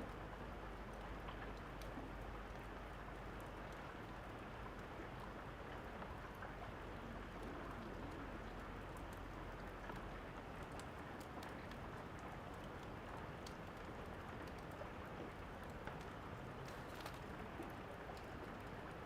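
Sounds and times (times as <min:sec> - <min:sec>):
rain falling: 0:00.0 - 0:19.0
wood fire crackling: 0:15.7 - 0:18.3.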